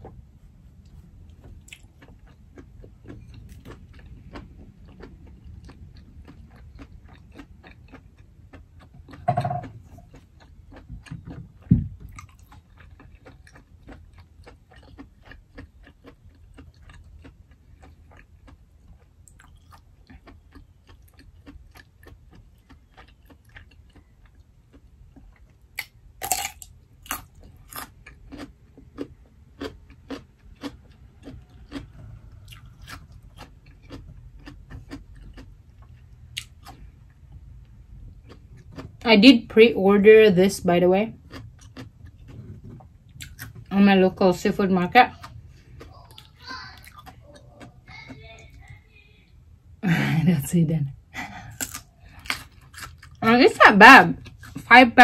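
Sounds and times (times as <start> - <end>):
person chewing softly: 0.0 - 39.0, 41.1 - 43.7, 45.1 - 49.3, 50.9 - 53.2, 54.2 - 54.7.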